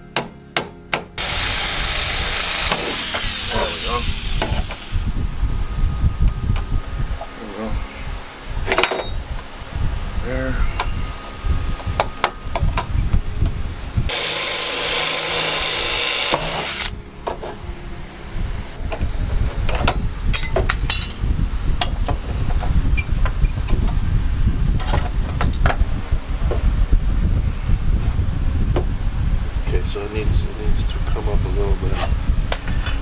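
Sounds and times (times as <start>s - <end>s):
power tool whirring: 1.2s - 5.1s, 14.1s - 17.0s.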